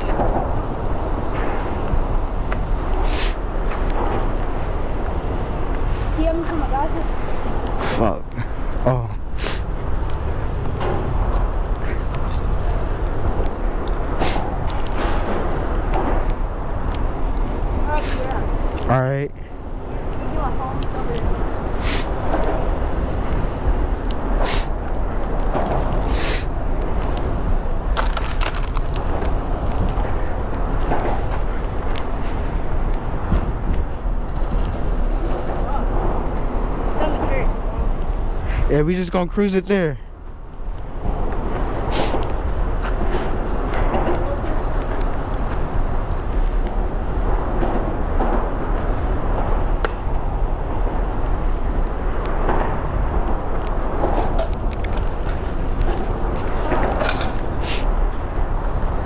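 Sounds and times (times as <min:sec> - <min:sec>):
wind buffeting microphone: 0:00.0 - 0:59.0
hissing surges: 0:00.1 - 0:15.3, 0:19.9 - 0:27.8.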